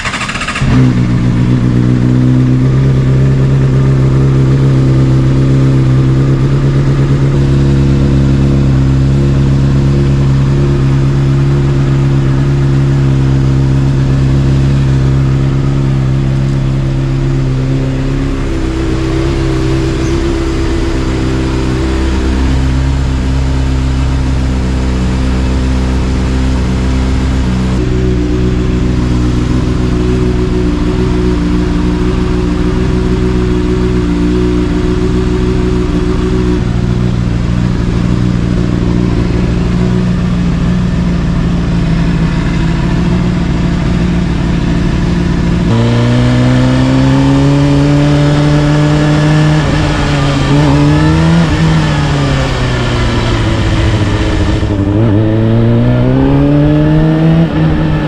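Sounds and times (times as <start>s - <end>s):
motorcycle engine idling: 0.0s - 45.8s.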